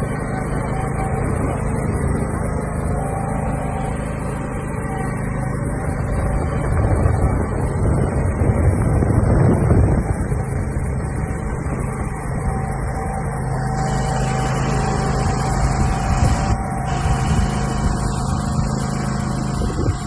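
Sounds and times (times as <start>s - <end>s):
riding lawn mower engine running: 0.0s - 20.0s.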